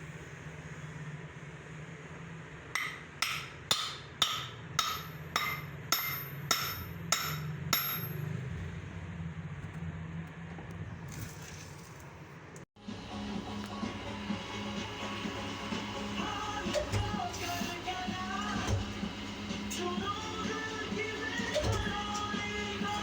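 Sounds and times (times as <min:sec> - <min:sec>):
hammer ringing on steel: 0:02.8 - 0:08.4
low machine hum: 0:12.3 - 0:23.0.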